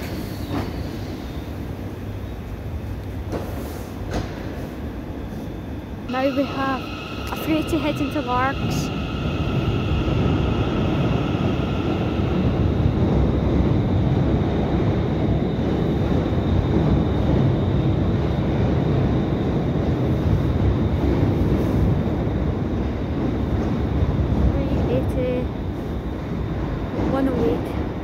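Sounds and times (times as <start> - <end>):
electric train rumble: 0.0 - 28.0
thin high tone: 6.1 - 12.1.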